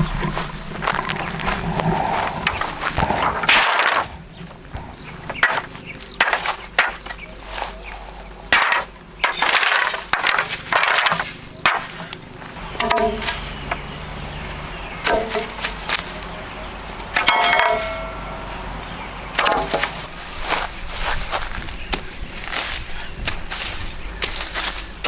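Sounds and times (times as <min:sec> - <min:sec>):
rustling and scraping: 0:00.0 - 0:18.8.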